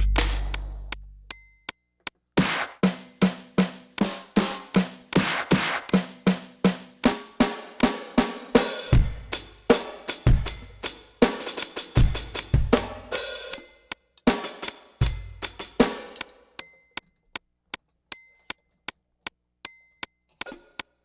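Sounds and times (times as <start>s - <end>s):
electronic drum kit: 0.0s - 1.3s, 2.4s - 6.4s, 7.2s - 13.6s, 14.4s - 16.2s
high ringing metronome accent: 0.0s - 1.8s.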